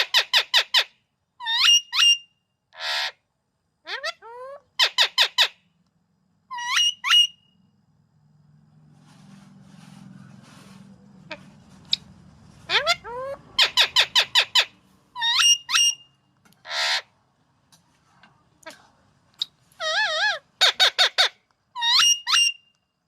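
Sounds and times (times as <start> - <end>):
parrot raspy squawk: 0.0 - 3.2, 3.9 - 5.6, 6.5 - 7.4, 12.6 - 17.2, 19.4 - 22.6
parrot squeaky whistles: 0.1 - 3.1, 6.5 - 7.5, 12.7 - 16.1, 19.4 - 22.7
faint low hum: 2.2 - 21.9.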